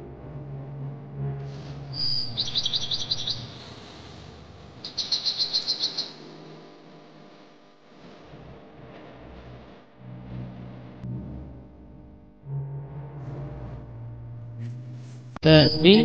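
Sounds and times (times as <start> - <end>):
small bird chirping: 2.0 - 3.8, 4.8 - 6.2.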